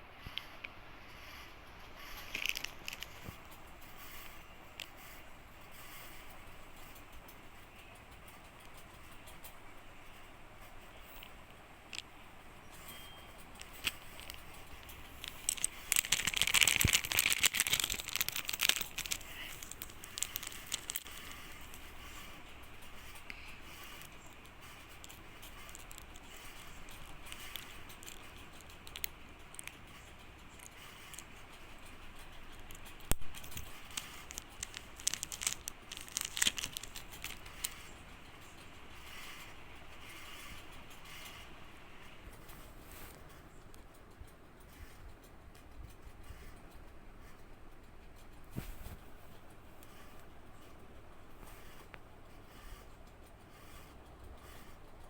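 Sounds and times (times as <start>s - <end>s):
packaging crinkling and tearing: 2.3s - 3.4s, 13.6s - 21.8s, 24.9s - 29.8s, 32.6s - 38.0s
sharp clicks: 11.0s - 48.5s.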